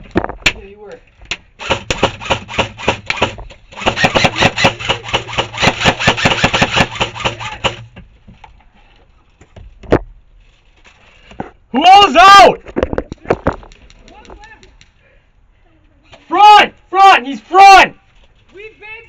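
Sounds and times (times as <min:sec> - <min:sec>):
airsoft rifle rapid shots: 0:01.6 - 0:07.9.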